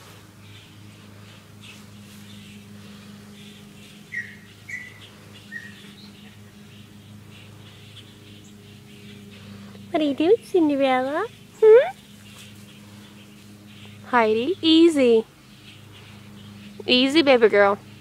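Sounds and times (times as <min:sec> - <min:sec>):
steady low hum: 0:00.0 - 0:18.0
small bird chirping: 0:00.4 - 0:18.0.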